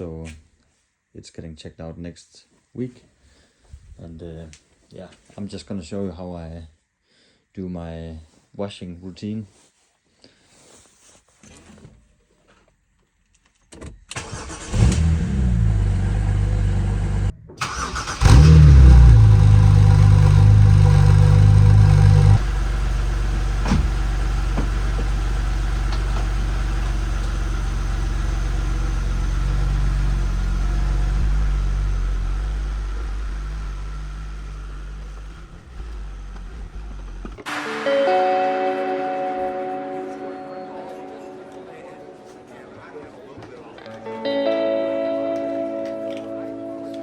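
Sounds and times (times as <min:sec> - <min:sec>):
car engine starting and idling: 0:14.1 - 0:37.5.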